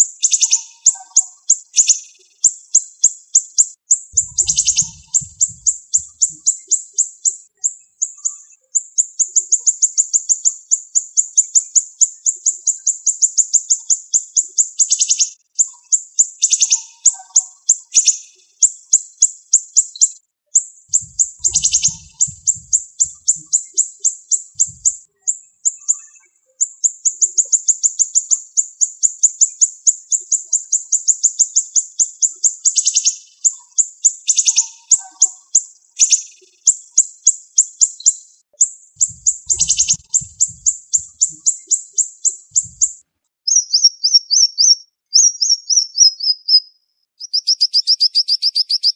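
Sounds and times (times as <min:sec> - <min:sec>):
songbird high-pitched trills: 0:00.2 - 0:48.9
downward-sweeping bird calls: 0:04.2 - 0:08.8, 0:20.9 - 0:27.8, 0:39.0 - 0:46.6.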